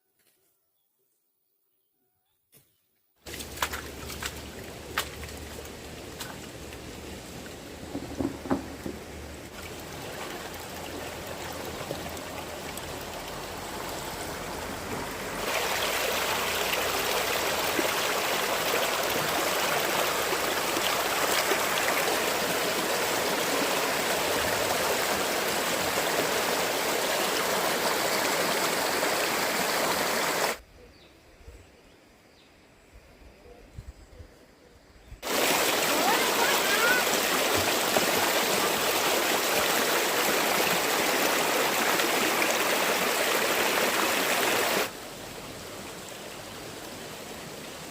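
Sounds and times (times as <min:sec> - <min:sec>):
fast-flowing stream rushing: 0:07.8 - 0:30.6, 0:35.2 - 0:47.9.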